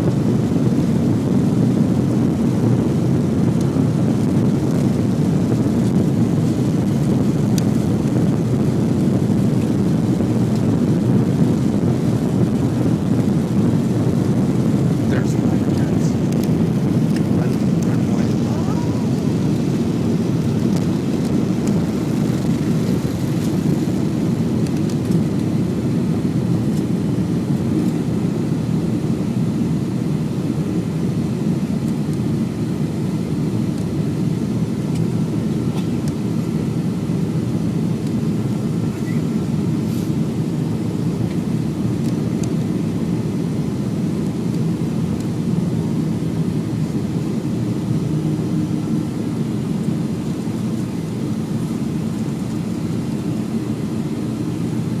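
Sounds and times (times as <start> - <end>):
jet engines and airflow: 0.0 - 55.0.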